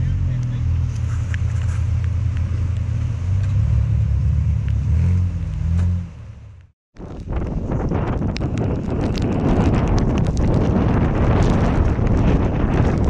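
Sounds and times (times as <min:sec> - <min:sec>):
wind buffeting microphone: 0:07.0 - 0:13.0
rain ticking on camera: 0:07.8 - 0:12.1.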